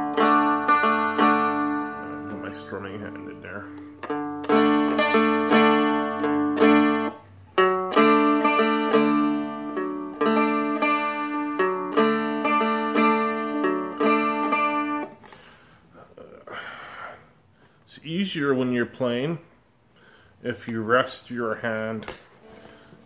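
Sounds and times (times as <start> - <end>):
strummed dulcimer chords: 0.0 - 15.2.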